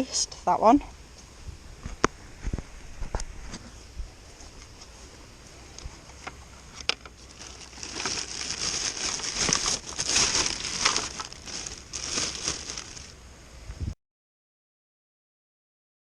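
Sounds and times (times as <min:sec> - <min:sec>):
material crinkling and rustling: 0:06.8 - 0:13.1.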